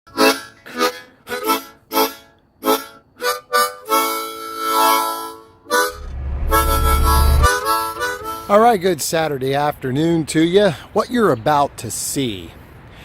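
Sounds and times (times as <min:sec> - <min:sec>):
reedy wind instrument: 0:00.2 - 0:08.5.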